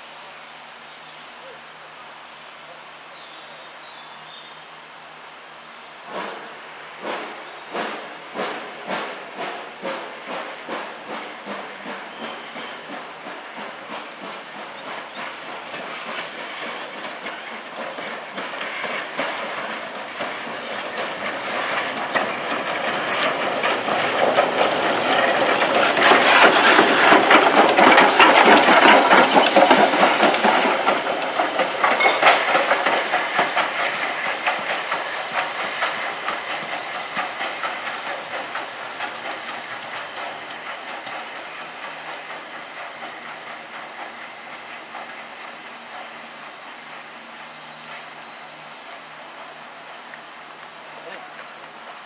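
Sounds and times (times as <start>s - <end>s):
steam hiss: 0.0s - 52.0s
wheels rattling on rail: 2.9s - 52.0s.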